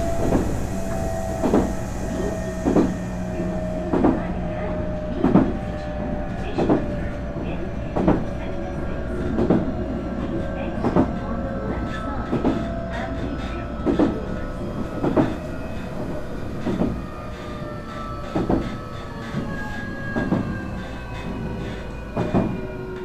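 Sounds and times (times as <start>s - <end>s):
train rumble: 0.0s - 23.0s
train wheels clacking over joints: 0.0s - 23.0s.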